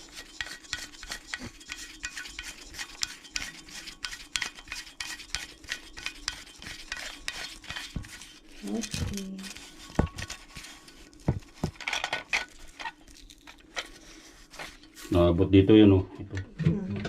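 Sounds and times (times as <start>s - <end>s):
plastic parts clicking and scraping: 8.6s - 14.8s.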